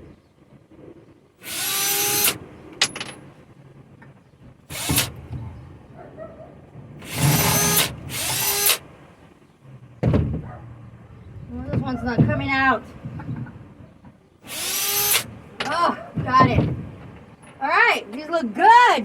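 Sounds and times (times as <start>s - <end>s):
power drill running: 1.4s - 2.4s, 4.7s - 5.2s, 7.0s - 8.8s, 14.4s - 15.3s.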